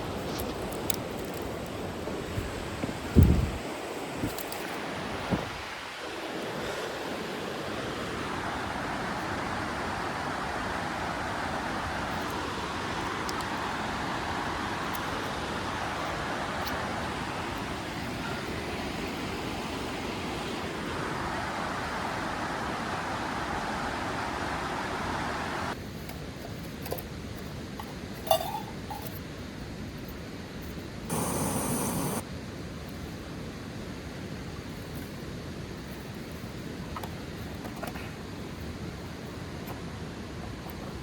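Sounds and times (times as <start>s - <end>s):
steady rushing noise: 31.1s - 32.2s.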